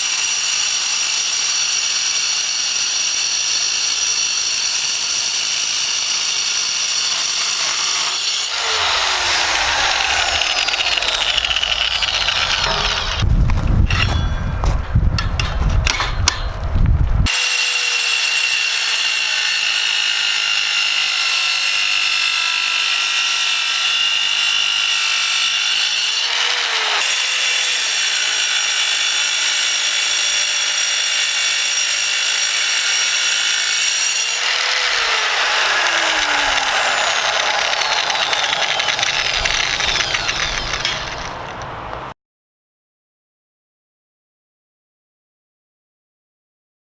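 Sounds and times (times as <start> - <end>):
angle grinder cutting steel: 0.0 - 42.1
knocks and clatter: 9.4 - 17.2, 36.0 - 42.1.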